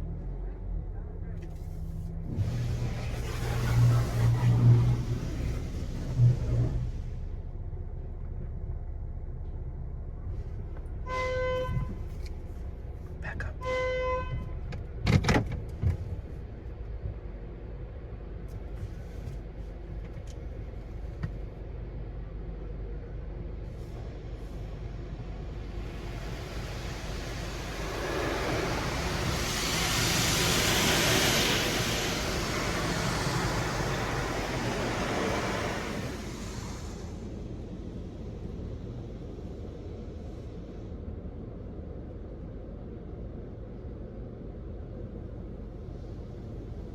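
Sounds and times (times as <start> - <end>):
low machine hum: 0.0 - 15.0, 16.0 - 46.9
hissing water spray: 2.3 - 7.0, 25.3 - 38.7.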